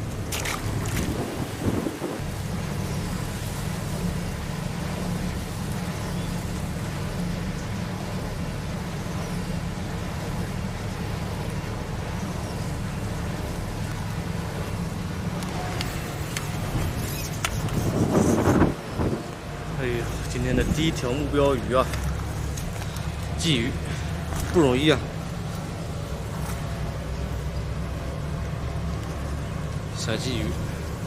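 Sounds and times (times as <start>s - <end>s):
wind buffeting microphone: 0.0s - 2.6s, 14.5s - 26.8s.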